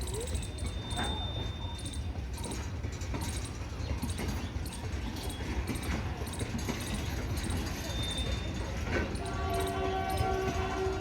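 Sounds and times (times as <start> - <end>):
train rumbling past: 3.0 - 11.0.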